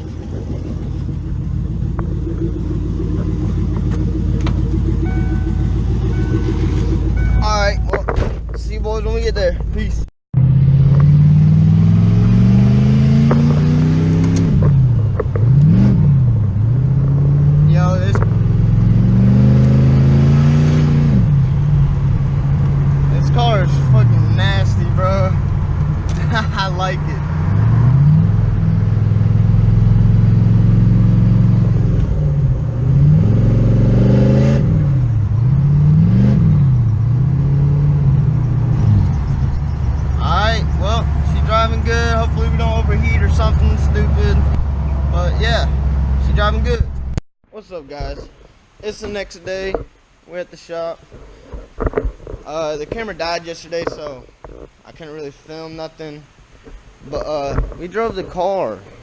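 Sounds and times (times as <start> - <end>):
car engine revving while driving: 0.0 - 7.5, 10.4 - 47.2.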